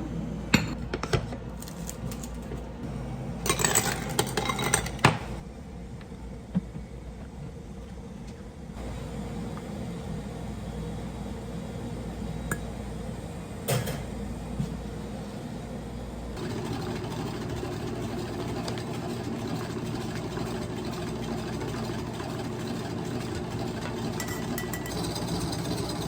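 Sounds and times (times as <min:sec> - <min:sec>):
dishes and utensils clinking: 0:03.4 - 0:05.4, 0:24.2 - 0:25.1.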